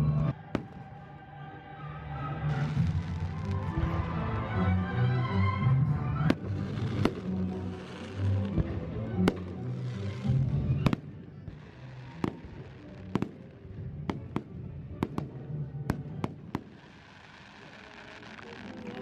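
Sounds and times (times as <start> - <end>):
holiday music: 0.0 - 11.0
fireworks bangs: 0.4 - 1.2, 2.4 - 4.2, 6.2 - 19.0.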